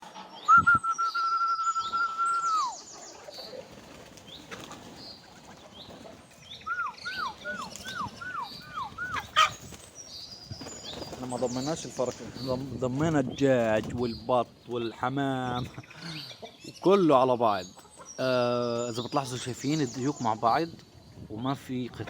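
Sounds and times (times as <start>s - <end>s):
birds chirping: 0.0s - 22.0s
bird whistling: 0.4s - 3.0s, 6.5s - 9.4s.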